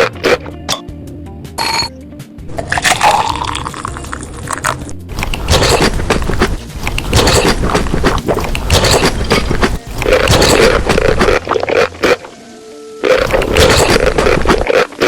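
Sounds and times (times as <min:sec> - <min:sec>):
chewing and crunching food: 0:02.5 - 0:12.4, 0:13.0 - 0:15.0.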